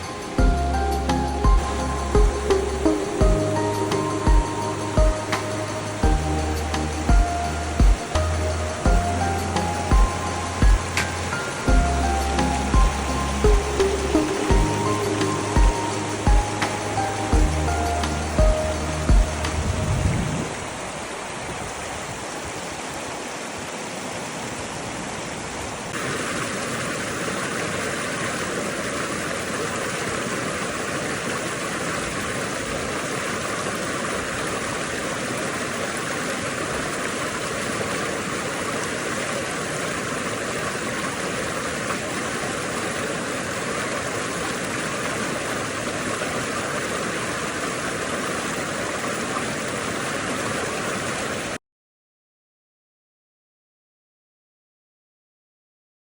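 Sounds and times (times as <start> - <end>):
steady rushing noise: 0.0 - 23.6.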